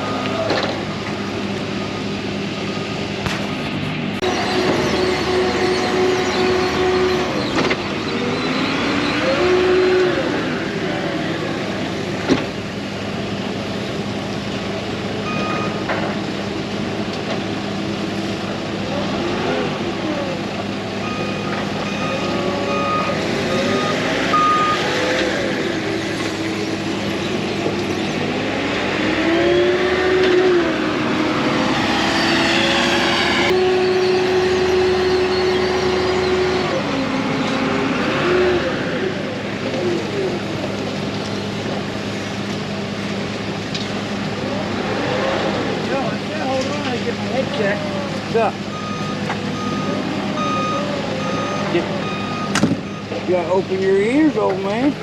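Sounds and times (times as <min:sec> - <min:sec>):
diesel machinery revving: 0:00.0 - 0:55.0
backup alarm beeps: 0:15.3 - 0:15.8, 0:21.0 - 0:24.9, 0:33.6 - 0:36.8, 0:48.7 - 0:53.2.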